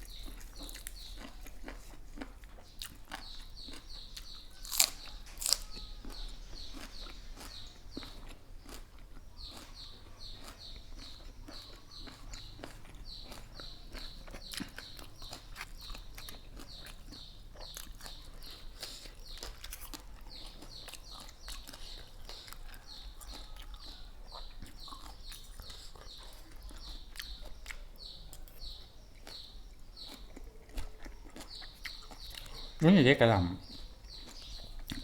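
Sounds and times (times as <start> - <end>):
chick peeping: 0.0 - 35.0.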